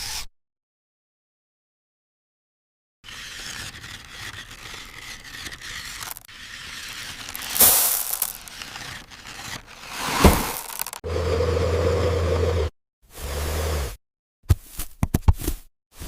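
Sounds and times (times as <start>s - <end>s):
scraping and rustling: 3.3s - 11.0s
sharp crunch: 3.4s - 11.0s.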